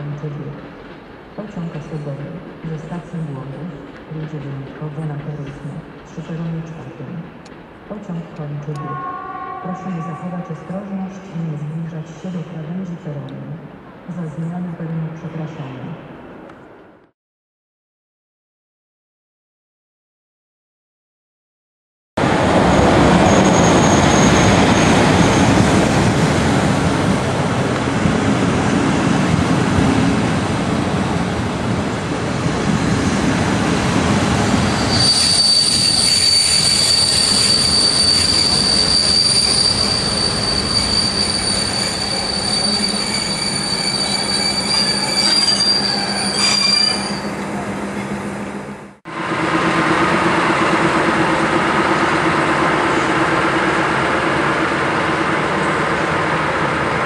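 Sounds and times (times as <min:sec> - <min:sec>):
railway coaches rumbling past: 0:22.2 - 0:57.0
high-pitched wheel squeal: 0:34.7 - 0:47.4
diesel locomotive engine hum: 0:46.0 - 0:57.0.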